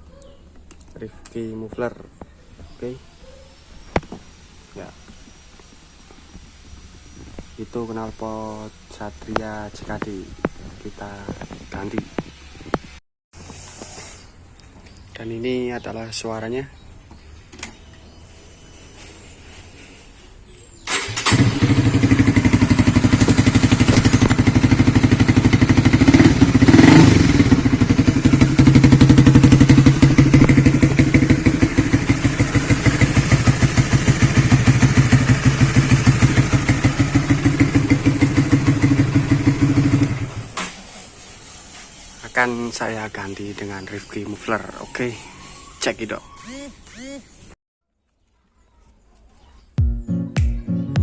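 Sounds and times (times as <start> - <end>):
motorcycle engine idling and revving: 20.8 - 41.3.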